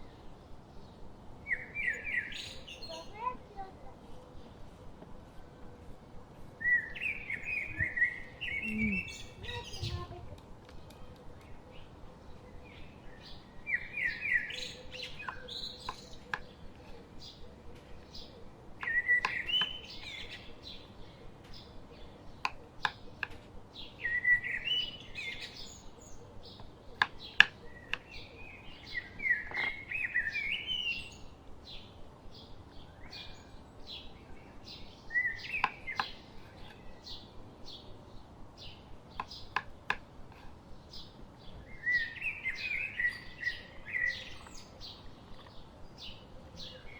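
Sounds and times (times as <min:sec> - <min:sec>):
songbird warbling: 0:01.4 - 0:03.7, 0:06.6 - 0:10.2
sharp bird ticks: 0:15.0 - 0:16.8, 0:18.8 - 0:20.0, 0:22.4 - 0:23.5, 0:26.6 - 0:28.2, 0:35.1 - 0:37.0, 0:39.0 - 0:40.6.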